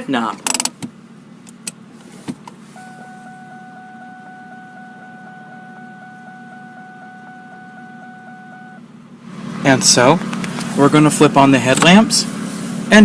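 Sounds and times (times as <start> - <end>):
low steady hum: 0.8 - 13.0
pulsing electronic warning chime: 2.8 - 8.8.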